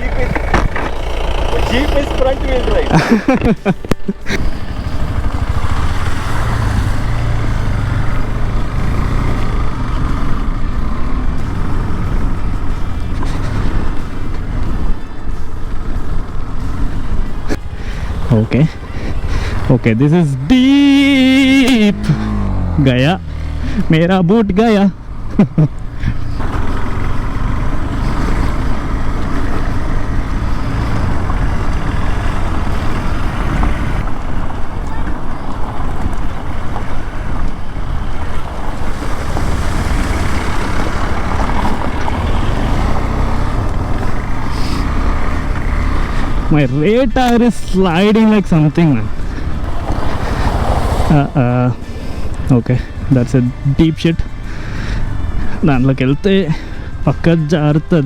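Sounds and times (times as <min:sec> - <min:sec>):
tyres rolling on mud: 0:00.0 - 0:08.6, 0:25.1 - 0:58.0
vehicle engine running: 0:00.0 - 0:58.0.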